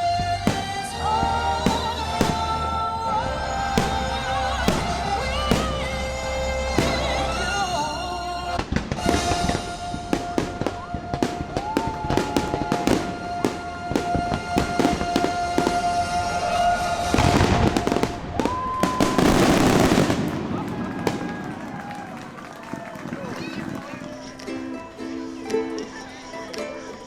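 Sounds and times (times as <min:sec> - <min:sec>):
music soundtrack: 0:00.0 - 0:18.4, 0:24.0 - 0:27.0
fireworks booming and crackling: 0:00.0 - 0:24.6.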